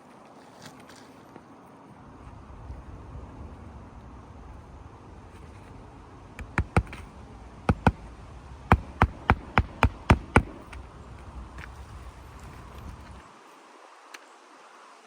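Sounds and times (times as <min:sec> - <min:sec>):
hammer striking roofing nails: 0:06.4 - 0:10.8.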